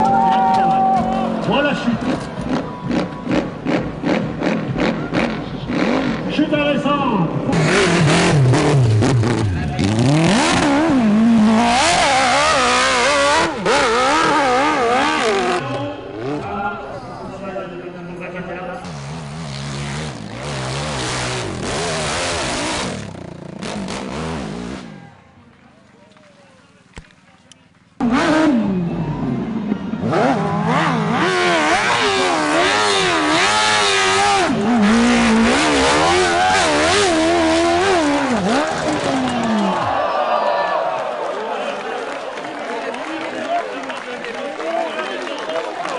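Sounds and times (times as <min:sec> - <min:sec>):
motocross bike engine revving: 0:01.2 - 0:06.5, 0:07.4 - 0:16.8, 0:18.8 - 0:25.0, 0:28.0 - 0:39.9.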